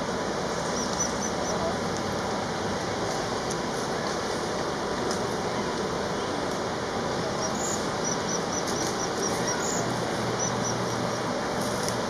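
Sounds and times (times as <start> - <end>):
background hiss and hum: 0.0 - 12.0
small bird chirping: 0.7 - 1.6, 7.4 - 11.2.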